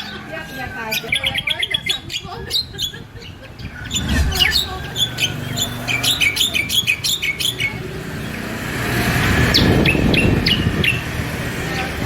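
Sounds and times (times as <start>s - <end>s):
songbird chirping: 0.0s - 12.0s
passing vehicle: 3.6s - 12.0s.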